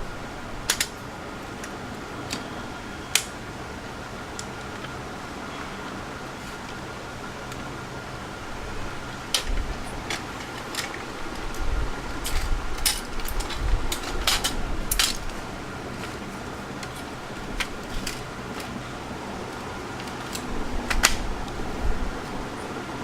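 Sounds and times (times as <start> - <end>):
steady background hum: 0.0 - 23.0
sharp clicks and clatters: 0.7 - 1.0, 9.3 - 15.4.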